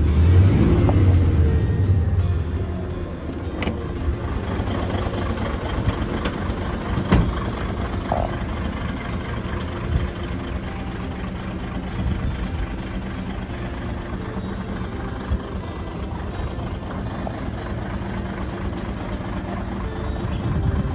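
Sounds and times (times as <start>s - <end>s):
truck diesel engine idling: 0.0s - 20.9s.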